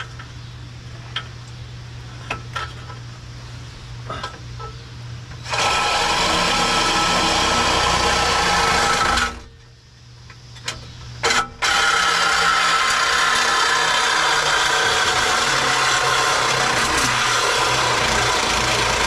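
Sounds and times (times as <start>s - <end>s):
reciprocating saw cutting metal pipe: 5.4s - 9.5s, 11.2s - 19.0s.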